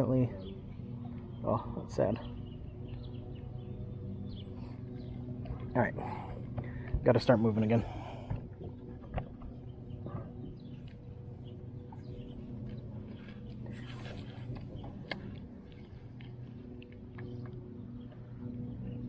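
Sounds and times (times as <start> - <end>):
birds chirping: 0.0 - 19.0
boat motor humming: 0.0 - 19.0.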